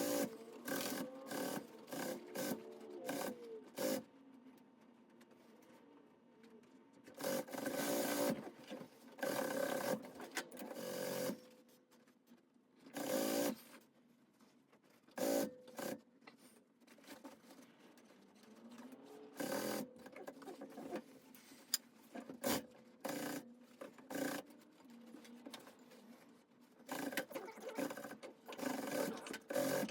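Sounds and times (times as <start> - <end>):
sewing machine stitching: 0.0 - 4.0, 7.1 - 11.4, 12.9 - 13.7, 18.6 - 21.1, 22.1 - 24.6, 26.8 - 29.9.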